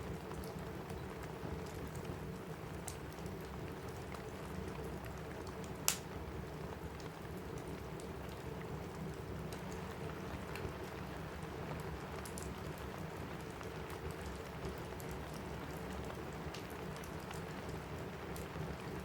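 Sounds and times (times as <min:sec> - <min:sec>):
rain on a roof: 0:00.0 - 0:19.0
wood fire crackling and popping: 0:00.0 - 0:19.0.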